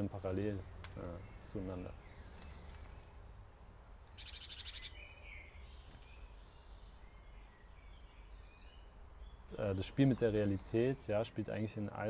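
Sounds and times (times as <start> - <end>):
high bird chirps: 1.0 - 10.8
rapid bird trill: 1.2 - 10.6.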